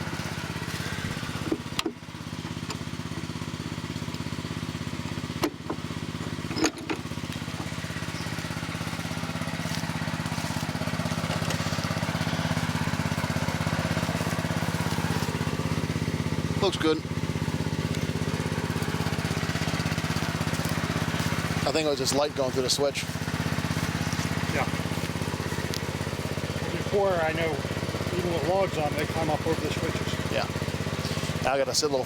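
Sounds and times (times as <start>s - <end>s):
small engine running: 0.0s - 32.0s.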